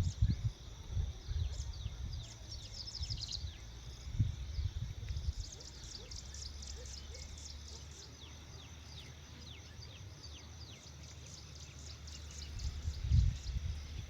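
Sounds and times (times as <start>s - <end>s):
steady low rumble: 0.0s - 6.8s
flock of birds chirping: 0.0s - 14.0s.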